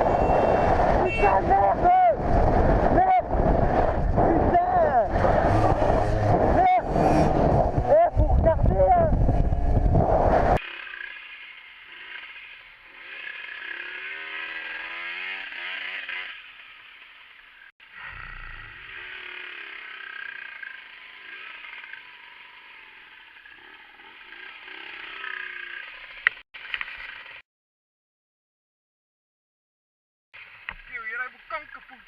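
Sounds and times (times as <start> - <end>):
low rumbling: 0.0 - 10.6
vehicle engine revving: 0.0 - 16.4
road noise: 0.0 - 27.4.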